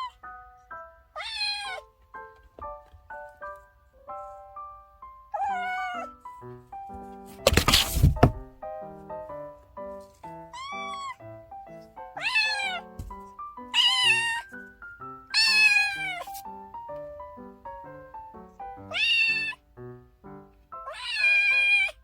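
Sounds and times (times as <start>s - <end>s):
kitten meowing: 1.2s - 1.9s, 5.3s - 6.1s, 10.5s - 11.2s, 12.2s - 12.9s, 13.7s - 14.6s, 15.3s - 16.4s, 18.9s - 19.6s, 20.8s - 22.0s.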